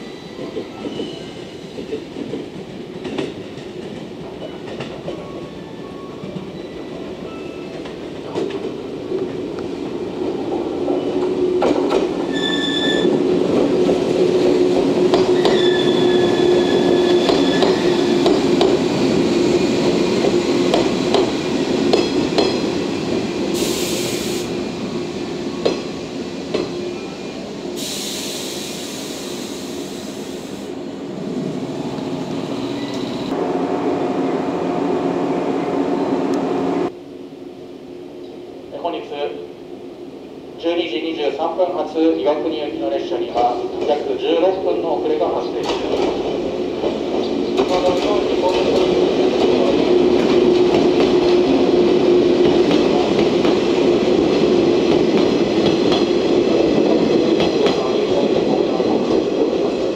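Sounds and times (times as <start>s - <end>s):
air brake hisses: 23.6s - 24.5s, 27.8s - 30.7s.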